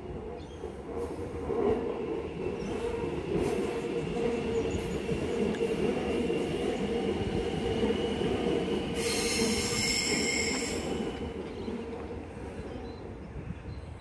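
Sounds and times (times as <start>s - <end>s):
train rumbling on rails: 0.0s - 14.0s
high-pitched wheel squeal: 9.0s - 10.9s.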